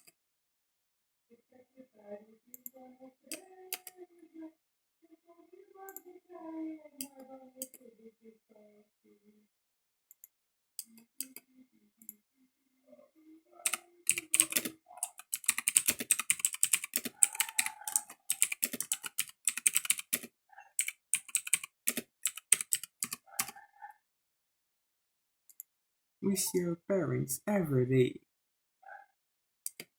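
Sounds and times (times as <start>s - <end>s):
typing on clicky mechanical keyboard: 13.6s - 23.5s.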